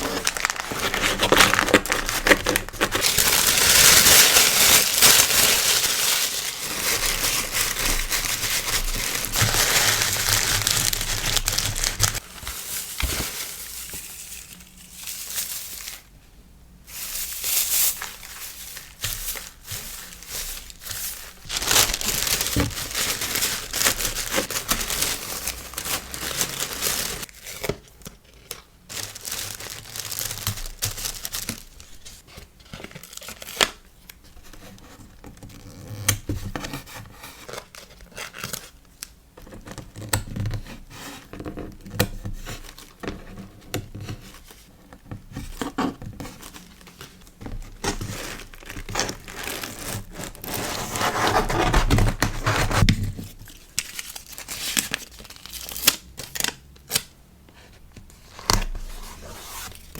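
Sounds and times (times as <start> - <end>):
packaging crinkling and tearing: 0.0 - 16.1, 16.9 - 33.8, 45.6 - 57.1.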